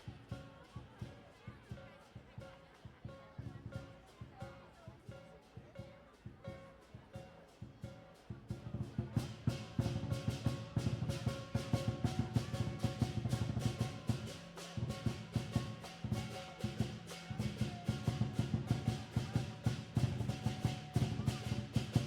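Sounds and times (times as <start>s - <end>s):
fast even drumming: 8.7s - 22.0s.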